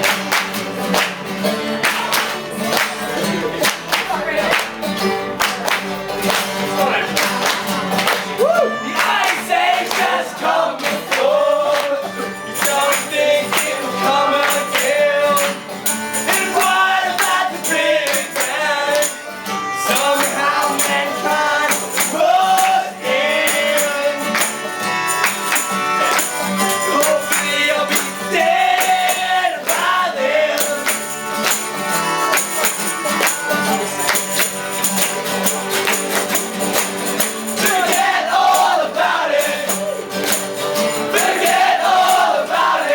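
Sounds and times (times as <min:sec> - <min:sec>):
live band playing: 0:00.0 - 0:10.6, 0:11.4 - 0:22.5, 0:23.1 - 0:28.7, 0:29.8 - 0:38.5, 0:39.8 - 0:42.7
person singing: 0:08.3 - 0:34.6
tambourine jingling: 0:11.2 - 0:42.9.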